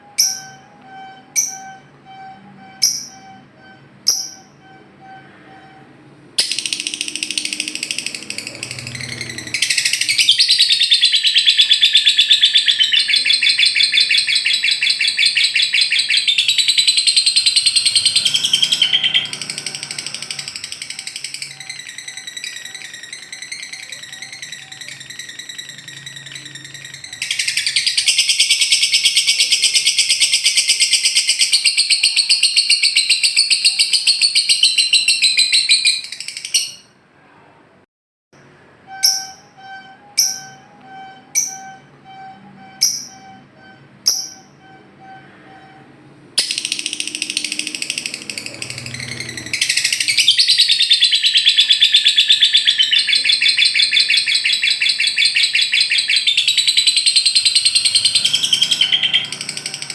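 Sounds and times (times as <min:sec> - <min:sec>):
bird chattering trills: 0:06.4 - 0:36.8, 0:46.4 - 0:59.9
sharp bird chirps: 0:06.4 - 0:36.9, 0:46.4 - 0:59.9.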